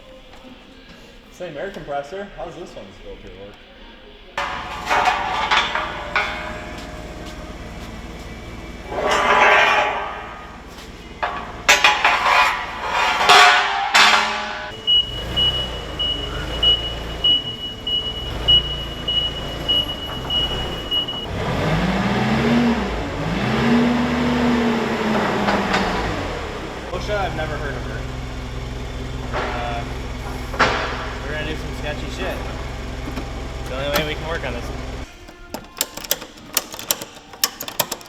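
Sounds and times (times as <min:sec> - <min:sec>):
engine rumbling and revving: 0:04.4 - 0:13.4, 0:14.5 - 0:35.1
metal clanks and knocks: 0:04.4 - 0:14.9, 0:17.4 - 0:21.3, 0:24.7 - 0:38.0
vehicle backup alarm beeping: 0:14.7 - 0:35.1.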